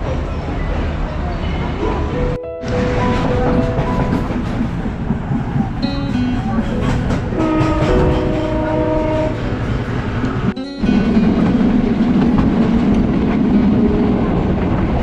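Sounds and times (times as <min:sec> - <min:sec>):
train wheels rumbling and rattling: 0:00.0 - 0:15.0
held musical tones: 0:02.2 - 0:04.8, 0:05.8 - 0:12.2.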